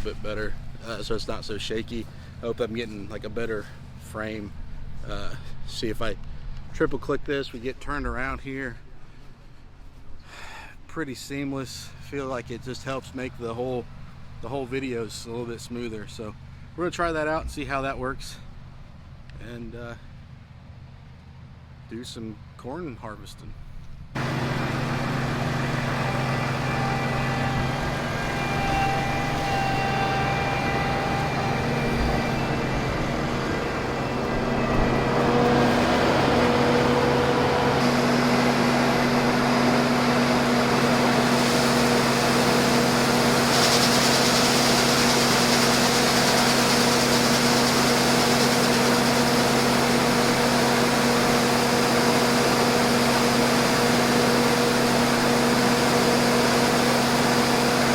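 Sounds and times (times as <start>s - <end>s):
combine engine droning: 0.0s - 7.1s, 23.5s - 57.9s.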